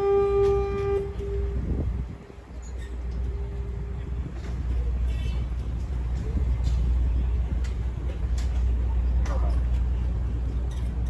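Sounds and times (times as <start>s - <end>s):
faint horn tone: 0.0s - 1.9s
boat engine rumble: 0.0s - 11.0s.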